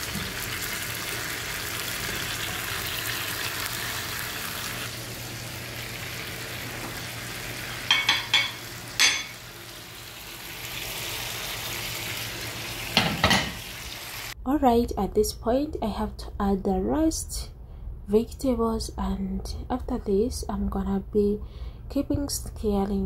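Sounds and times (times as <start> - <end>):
food sizzling in a pan: 0.0 - 14.4.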